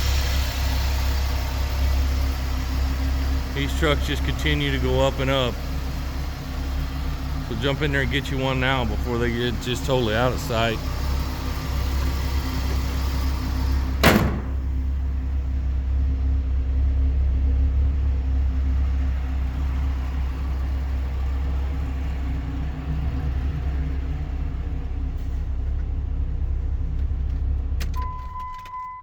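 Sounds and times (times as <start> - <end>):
truck engine idling: 0.0 - 28.6
door slamming: 13.8 - 14.8.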